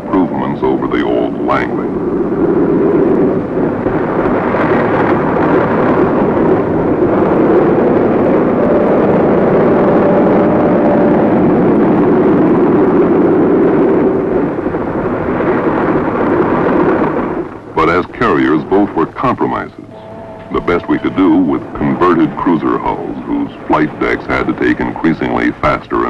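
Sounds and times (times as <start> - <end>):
aircraft engines droning: 0.0 - 26.0
faint held tone: 18.4 - 23.8.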